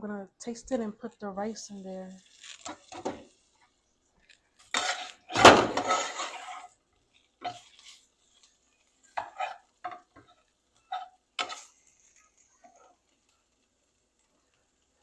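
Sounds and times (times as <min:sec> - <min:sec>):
pots and utensils clattering: 0:04.7 - 0:06.6.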